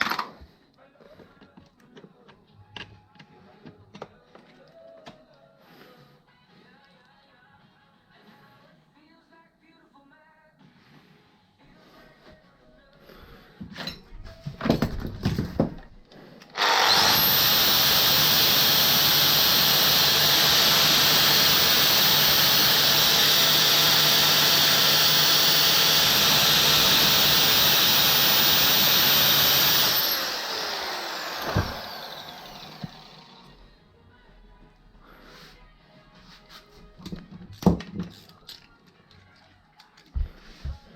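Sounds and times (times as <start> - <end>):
knocks and clatters: 13.7 - 16.0
power tool whining and grinding: 16.5 - 33.6.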